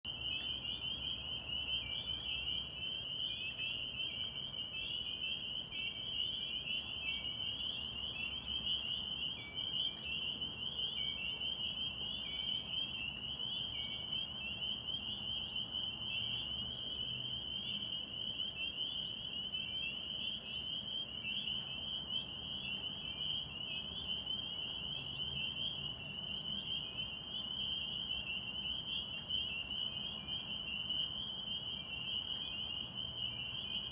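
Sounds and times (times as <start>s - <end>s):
frogs peeping in chorus: 0.0s - 33.9s.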